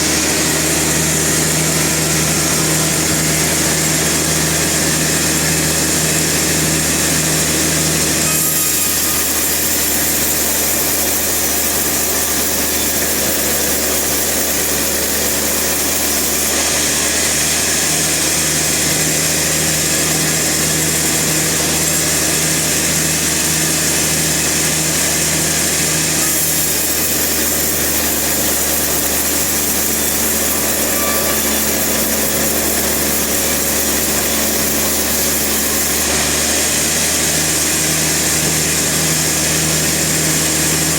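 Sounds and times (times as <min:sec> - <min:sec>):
sawmill saw running: 0:00.0 - 0:40.9.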